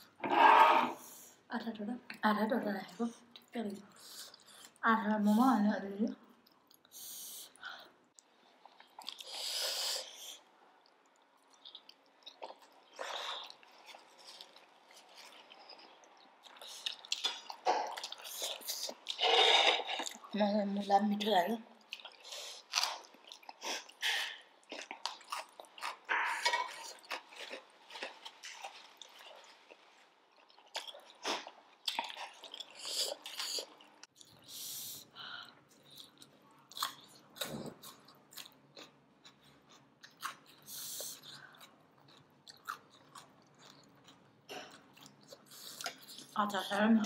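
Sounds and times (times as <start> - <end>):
chewing and biting: 21.8 - 34.5, 35.7 - 46.4.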